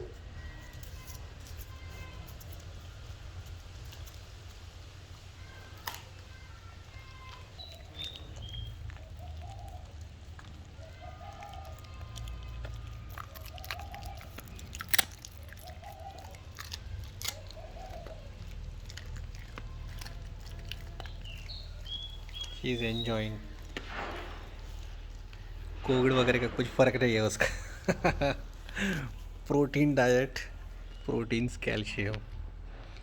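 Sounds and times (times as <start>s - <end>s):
dog chewing and crunching: 0.0s - 33.0s
bones cracking: 0.5s - 29.4s
bird calling: 6.3s - 26.6s.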